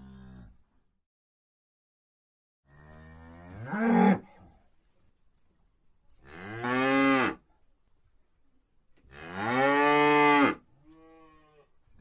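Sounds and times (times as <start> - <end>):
cow mooing: 2.7 - 4.3, 9.1 - 11.7.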